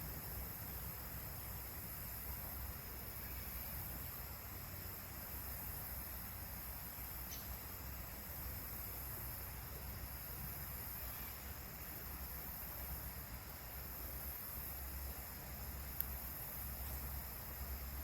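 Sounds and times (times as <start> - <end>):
faint tick: 16.0 - 16.2.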